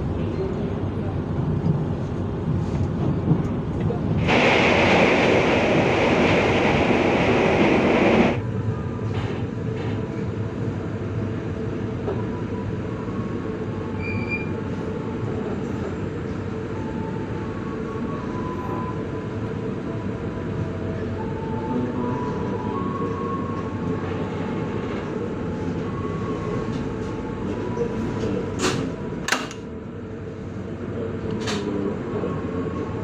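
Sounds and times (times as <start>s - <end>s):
train wheels rumbling on track: 0.0s - 8.4s
loud rushing hiss: 4.2s - 8.4s.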